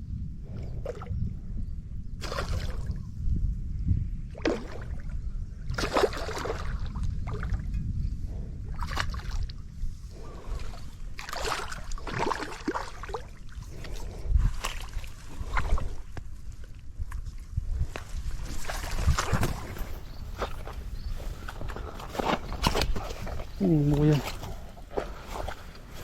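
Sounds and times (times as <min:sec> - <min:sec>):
steady low rumble: 0:00.0 - 0:26.0
water sloshing and splashing: 0:02.2 - 0:03.1, 0:04.3 - 0:07.8, 0:08.7 - 0:20.8.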